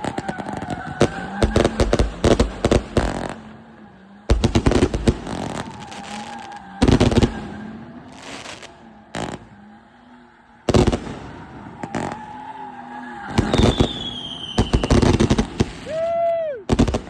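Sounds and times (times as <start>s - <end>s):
firework bangs: 0.0s - 9.8s, 10.6s - 17.0s
firework crackling fizz: 4.3s - 9.5s, 13.3s - 17.0s.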